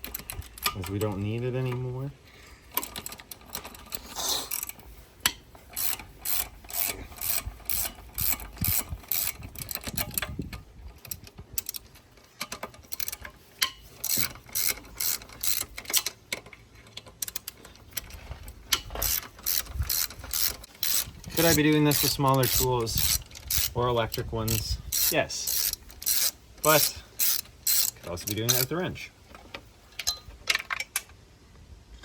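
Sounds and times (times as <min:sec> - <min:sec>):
socket ratchet clicking: 0:02.7 - 0:28.7.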